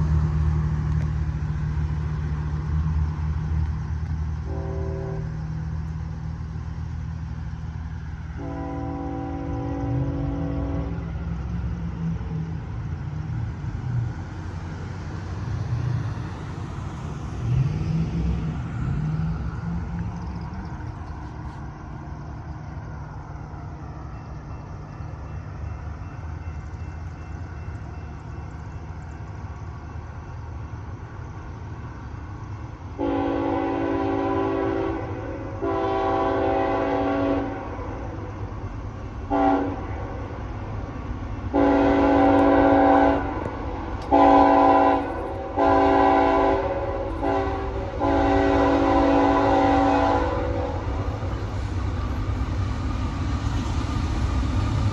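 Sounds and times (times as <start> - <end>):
locomotive engine rumble: 0.0 - 54.9
multi-tone train air horn: 4.5 - 5.3, 8.4 - 11.0, 33.0 - 37.8, 39.3 - 40.2, 41.5 - 51.1.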